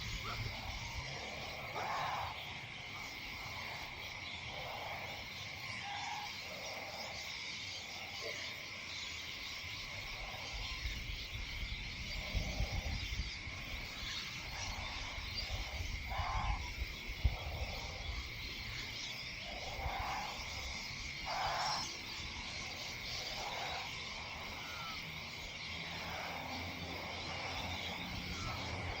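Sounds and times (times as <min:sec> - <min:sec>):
high insect drone: 0:00.0 - 0:29.0
wind rumble on microphone: 0:10.0 - 0:23.4.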